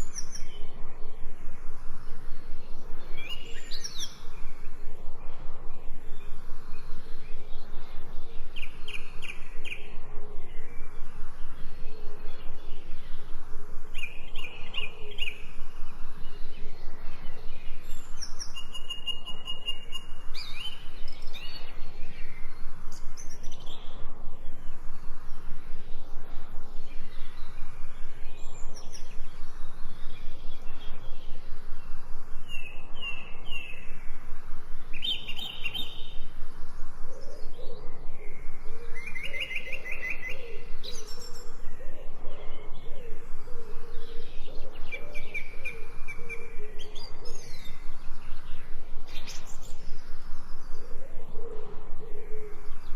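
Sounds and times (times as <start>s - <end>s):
low repeated bird calls: 0.0s - 52.9s
pulsing background hiss: 0.0s - 52.9s
songbirds chirping and trilling: 0.0s - 52.9s.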